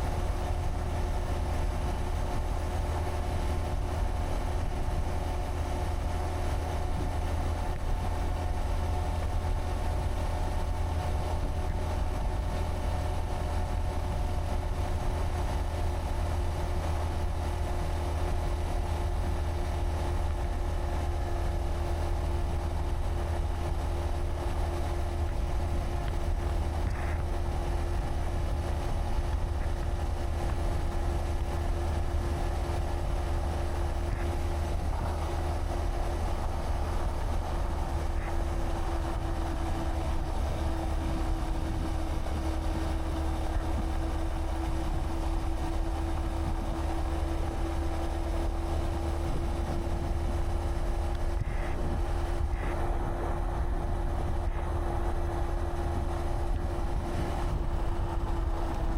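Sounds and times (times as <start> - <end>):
low wind rumble on microphone: 0.0 - 58.9
motorcycle engine cruising: 0.0 - 58.9.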